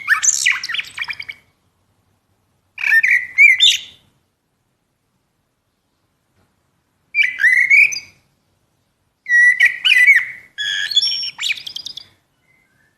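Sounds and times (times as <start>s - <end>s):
blackbird singing: 0.0s - 1.5s, 2.8s - 4.0s, 7.2s - 8.2s, 9.2s - 12.9s.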